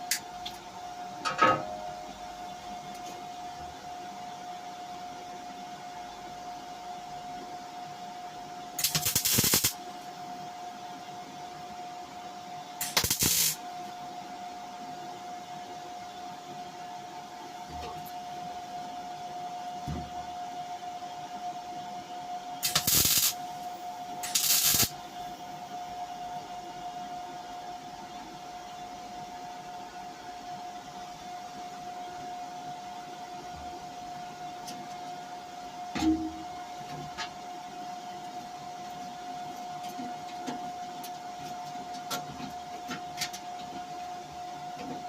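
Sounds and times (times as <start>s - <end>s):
steady high hum: 0.0s - 45.0s
welding arc crackle: 8.8s - 9.8s, 12.8s - 13.6s, 22.6s - 25.0s.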